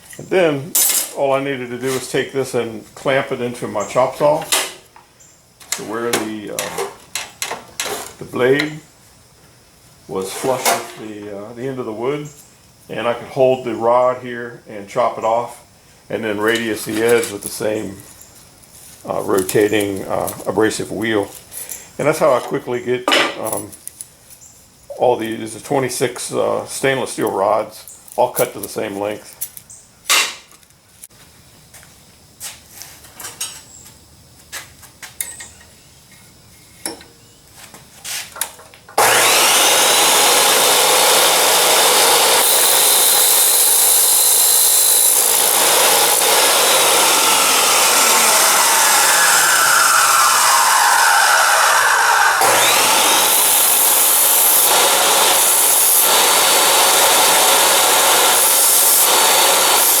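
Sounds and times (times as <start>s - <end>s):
chop saw grinding steel: 39.0s - 60.0s.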